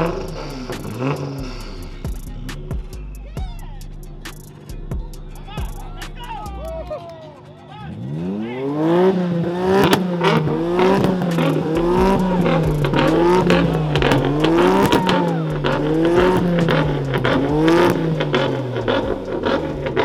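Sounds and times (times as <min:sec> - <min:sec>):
car engine revving: 0:00.0 - 0:06.3, 0:07.8 - 0:20.0
sharp engine cracks: 0:09.5 - 0:20.0.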